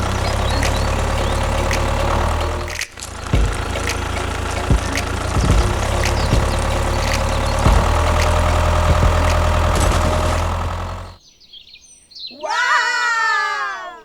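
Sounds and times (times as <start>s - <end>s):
small engine idling: 0.0s - 11.2s.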